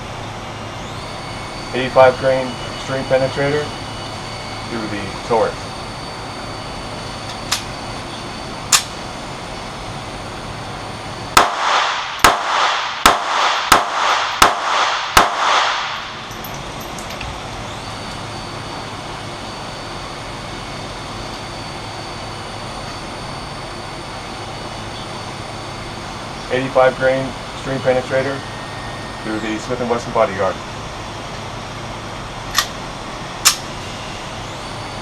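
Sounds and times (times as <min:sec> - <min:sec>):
sharp click: 0:08.7 - 0:09.0, 0:33.4 - 0:33.6
pistol shots with echo: 0:11.4 - 0:16.1.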